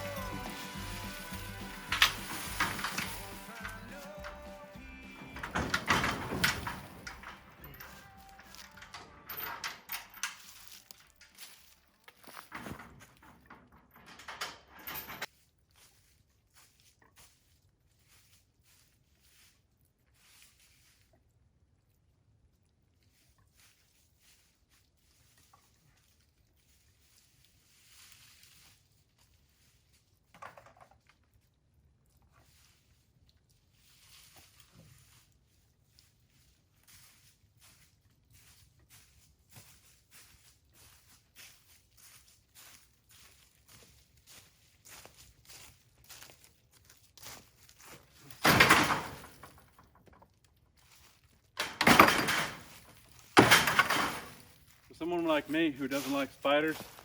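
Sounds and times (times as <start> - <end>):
soft footsteps: 0.0 - 5.4, 33.8 - 48.4, 54.3 - 57.0.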